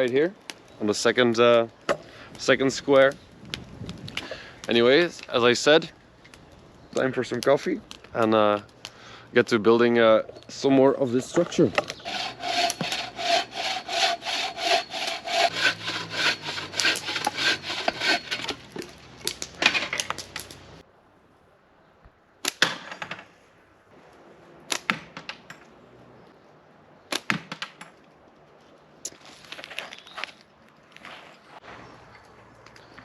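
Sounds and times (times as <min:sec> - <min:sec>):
hand saw cutting wood: 0:11.2 - 0:19.0.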